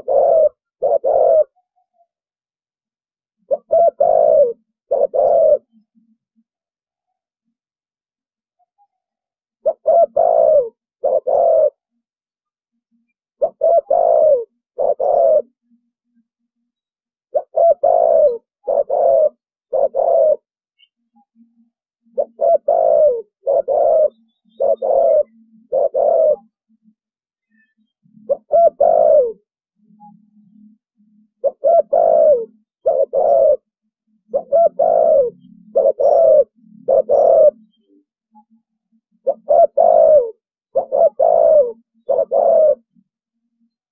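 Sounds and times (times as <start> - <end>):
dove cooing: 0.0 - 1.6, 3.4 - 5.8, 9.6 - 12.0, 13.4 - 15.7, 17.3 - 20.5, 22.0 - 26.6, 28.1 - 30.4, 31.4 - 38.6, 39.2 - 43.0.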